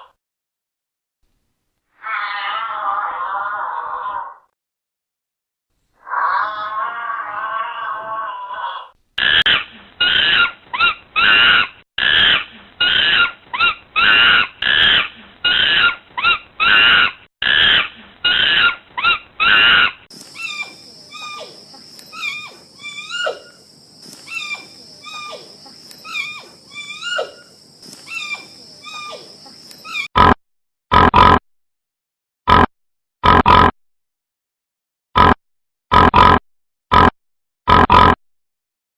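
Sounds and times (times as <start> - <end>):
harsh animal calls: 1.9 - 4.5, 6.0 - 30.1
short chirping calls: 20.1 - 30.1.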